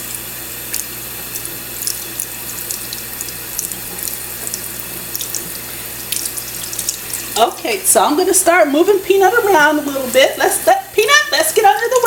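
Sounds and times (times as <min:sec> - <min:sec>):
tap water running into sink: 0:00.0 - 0:07.7
water dripping and splashing: 0:00.7 - 0:07.7.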